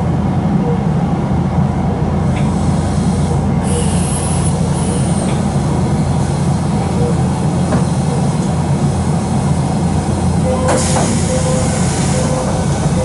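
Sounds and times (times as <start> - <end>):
train low rumble: 0.0 - 13.0
compressed-air hiss: 10.7 - 12.8.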